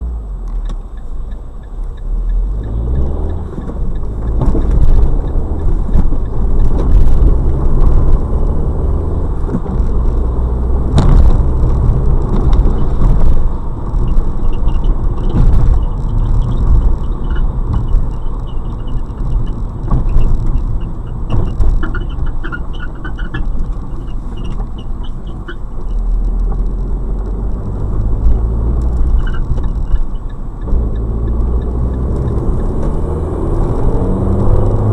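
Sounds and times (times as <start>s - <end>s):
road and engine rumble: 0.0s - 34.9s
knocks over bumps: 3.5s - 8.2s, 10.9s - 13.5s
short high squeak from car: 14.1s - 26.0s, 29.1s - 30.4s.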